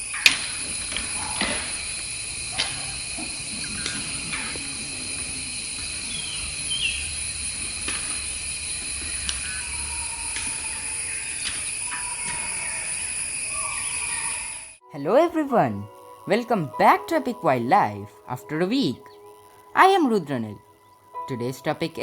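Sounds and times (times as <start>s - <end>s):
high-pitched insect drone: 0.0s - 22.0s
brief falling bird call: 1.2s - 8.0s.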